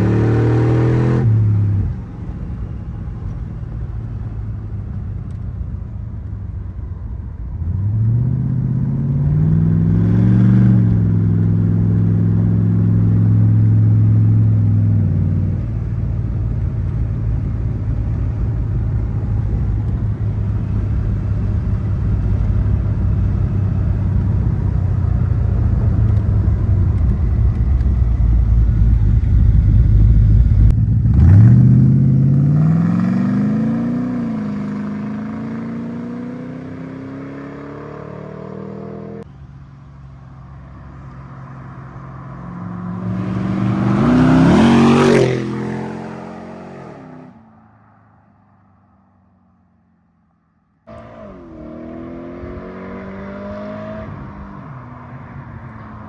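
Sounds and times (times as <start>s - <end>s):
car engine rumbling and accelerating: 0.0s - 56.0s
car driving past: 40.4s - 48.9s.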